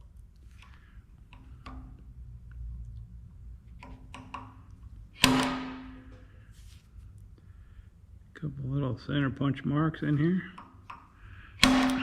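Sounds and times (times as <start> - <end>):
hammer tapping a metal punch: 5.2 - 6.1, 11.6 - 12.0.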